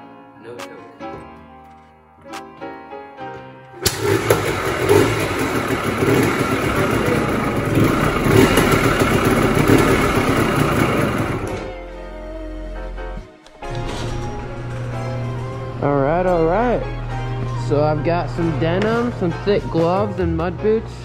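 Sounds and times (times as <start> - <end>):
two-stroke engine running loudly: 3.8 - 11.7
music with plucked strings: 13.1 - 21.0.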